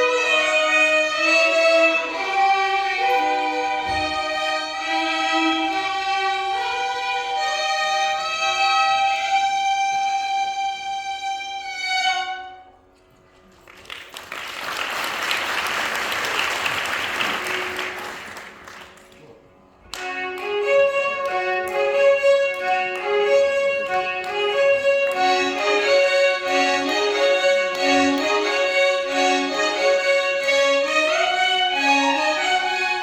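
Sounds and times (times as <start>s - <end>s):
violin orchestra playing: 0.0s - 12.8s, 19.9s - 33.0s.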